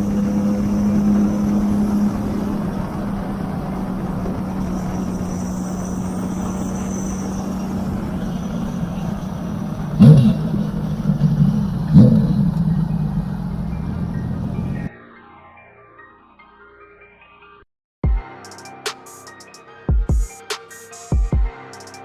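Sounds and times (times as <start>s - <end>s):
motorcycle engine idling: 0.0s - 14.9s
motorcycle engine revving: 0.0s - 14.9s.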